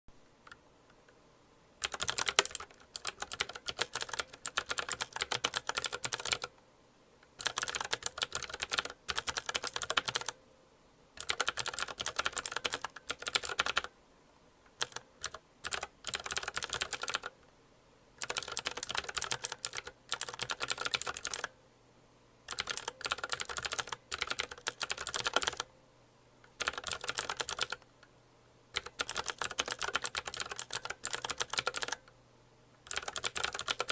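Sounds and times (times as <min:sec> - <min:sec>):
mechanical keyboard key clicks: 0:28.8 - 0:32.0, 0:32.8 - 0:33.9.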